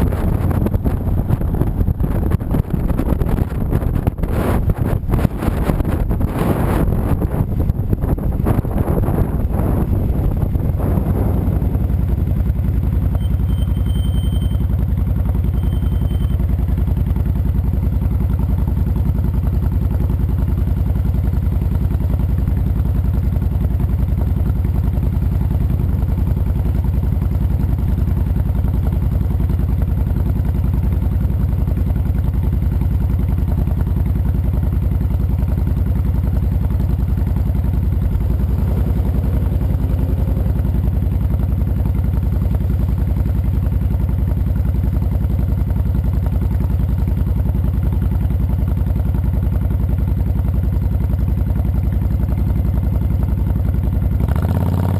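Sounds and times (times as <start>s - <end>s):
wind on microphone: 0.0s - 12.1s
motorcycle engine idling: 0.0s - 54.9s.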